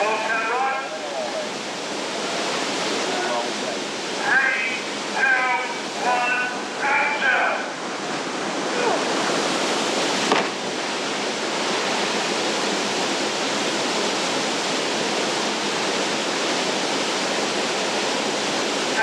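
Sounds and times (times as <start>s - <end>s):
water rushing: 0.0s - 19.0s
sharp knock: 10.3s - 10.6s.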